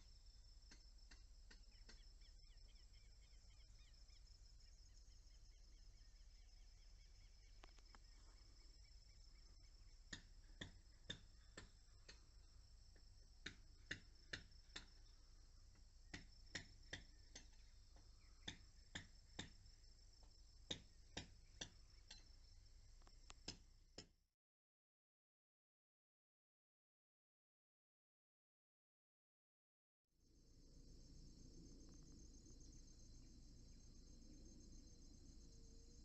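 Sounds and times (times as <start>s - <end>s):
crickets trilling: 0.0s - 23.8s, 30.3s - 36.0s
sharp irregular clicks: 0.7s - 2.1s, 13.4s - 15.0s.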